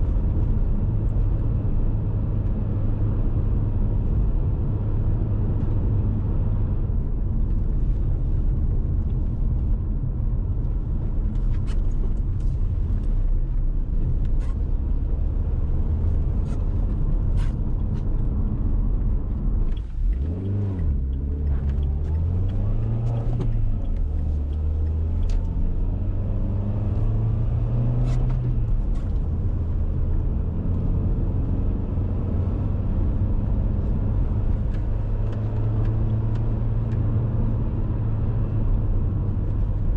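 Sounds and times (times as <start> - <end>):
car engine driving: 0.0 - 39.9
road noise: 0.0 - 39.9.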